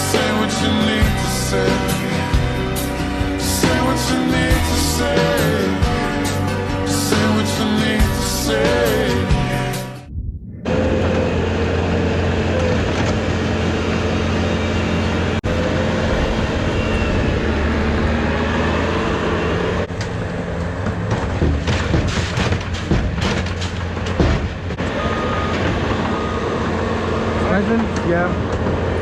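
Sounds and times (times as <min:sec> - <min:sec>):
heavy truck engine running: 0:10.6 - 0:29.0
clatters and knocks: 0:19.9 - 0:24.8.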